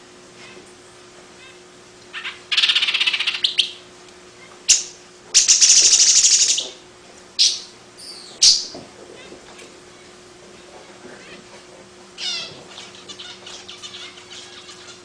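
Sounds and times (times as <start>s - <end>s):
bird buzzy rattles: 5.4s - 6.7s.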